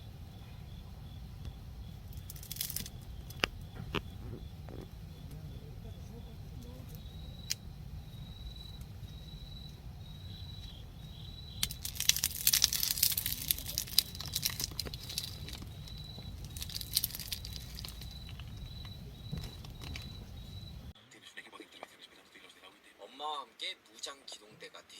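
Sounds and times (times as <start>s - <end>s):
high-pitched insect trill: 0.0s - 20.9s
low background hum: 0.0s - 21.0s
loud crinkling and rustling: 2.1s - 5.0s, 11.6s - 20.9s.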